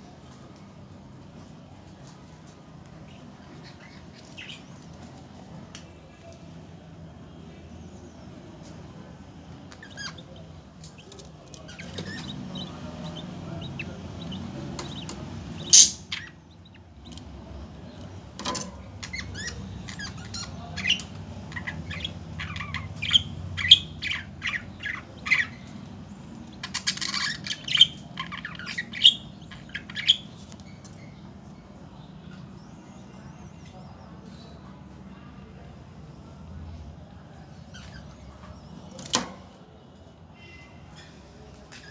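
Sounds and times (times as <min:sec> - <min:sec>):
budgerigars chirping and squawking: 0:03.5 - 0:05.3, 0:09.6 - 0:31.4.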